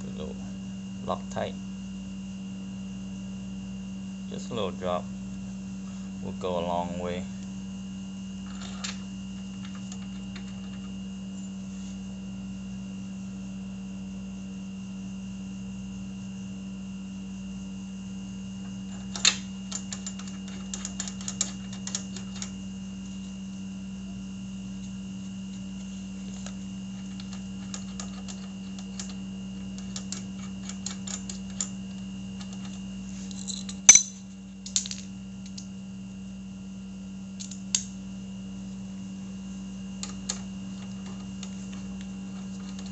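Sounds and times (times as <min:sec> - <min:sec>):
steady background hum: 0:00.0 - 0:42.9
sharp metal clack: 0:33.8 - 0:34.3.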